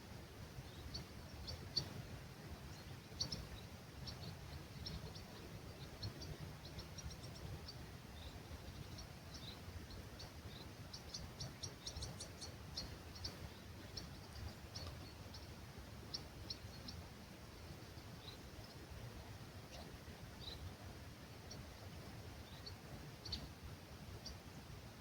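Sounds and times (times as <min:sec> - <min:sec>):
low rumble of breeze: 0:00.0 - 0:25.0
small birds chirping: 0:00.1 - 0:25.0.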